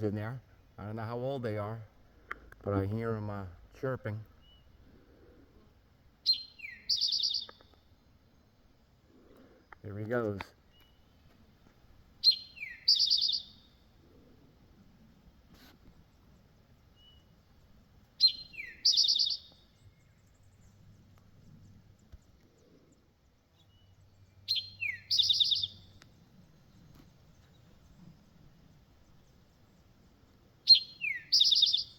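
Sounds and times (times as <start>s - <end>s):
bird singing with buzzy trill: 4.3s - 4.8s, 6.2s - 8.6s, 12.2s - 14.0s, 16.1s - 31.9s.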